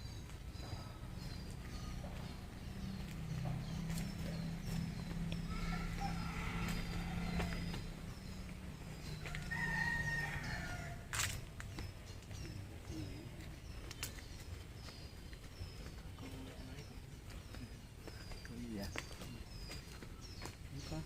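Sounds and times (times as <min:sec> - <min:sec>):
rooster crowing: 0:05.4 - 0:08.0, 0:09.2 - 0:11.1.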